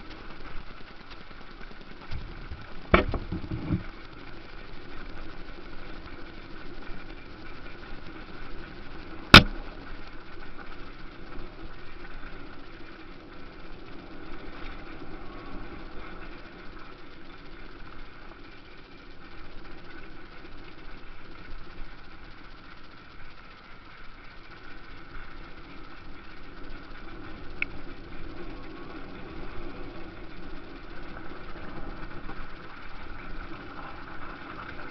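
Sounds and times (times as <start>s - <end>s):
sharp loud click: 9.4s - 9.6s.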